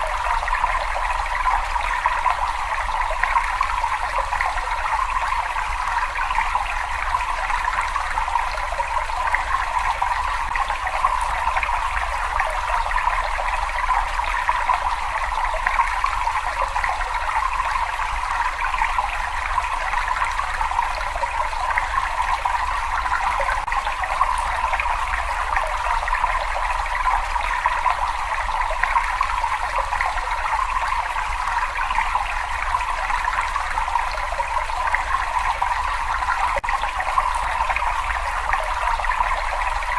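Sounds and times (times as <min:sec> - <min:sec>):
water trickling in a cave: 0:00.0 - 0:39.9.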